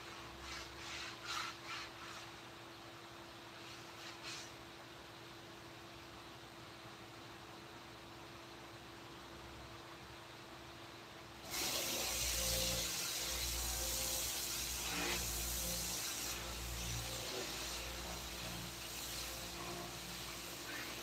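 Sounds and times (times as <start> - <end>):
compressed air hissing: 11.5 - 21.0.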